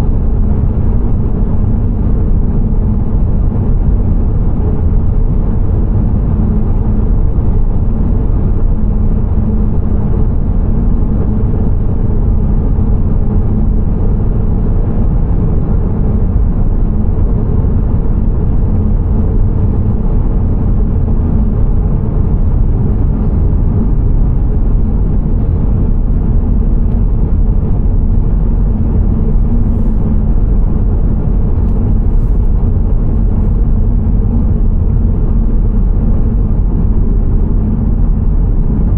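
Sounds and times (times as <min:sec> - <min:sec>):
car driving on road: 0:11.5 - 0:38.9.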